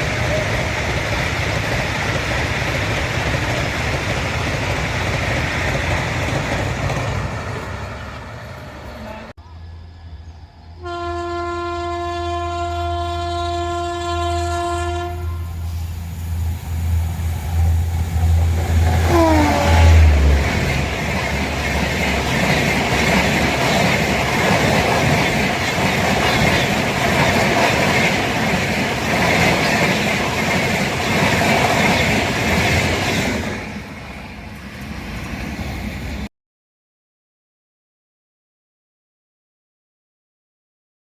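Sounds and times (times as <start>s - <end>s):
low train rumble: 0.0s - 36.3s
train rushing past: 0.0s - 36.3s
train horn blast: 10.8s - 15.8s, 18.9s - 20.4s.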